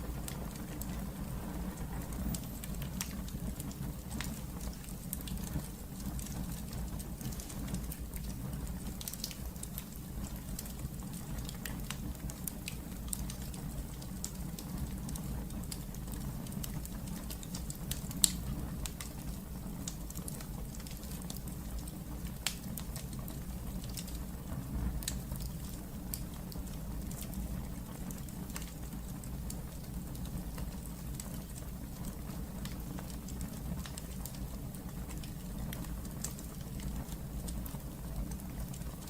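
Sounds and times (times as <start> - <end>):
low rumble of flames: 0.0 - 39.0
wood fire crackling: 0.0 - 39.0
sharp pops and snaps: 2.2 - 24.2.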